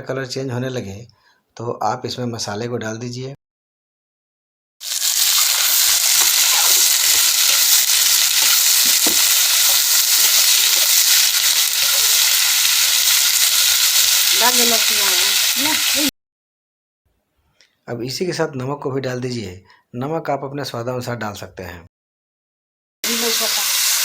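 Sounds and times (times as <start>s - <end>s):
chicken sizzling in hot oil: 4.8s - 16.1s, 23.0s - 24.0s
food being stirred in pan: 4.8s - 16.1s.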